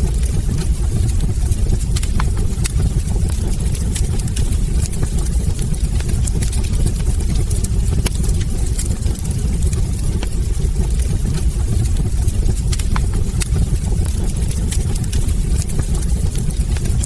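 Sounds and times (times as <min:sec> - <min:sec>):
fire rumbling: 0:00.0 - 0:17.0
logs crackling and popping: 0:00.0 - 0:17.0.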